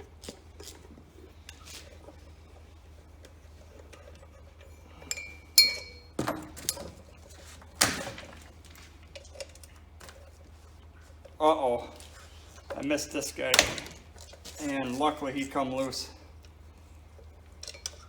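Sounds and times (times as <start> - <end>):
metal tools clinking: 5.0 - 6.9.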